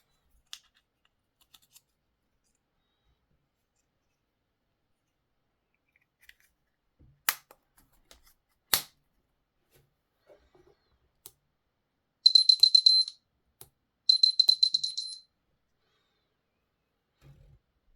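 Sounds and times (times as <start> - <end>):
rapid high-pitched electronic beeping: 12.3 - 13.2, 14.1 - 15.2.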